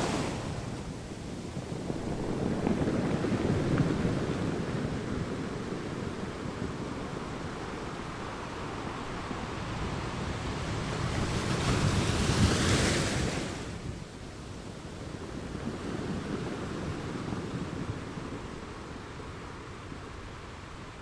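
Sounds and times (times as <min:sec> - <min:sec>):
sea waves crashing on rocks: 0:00.0 - 0:04.4.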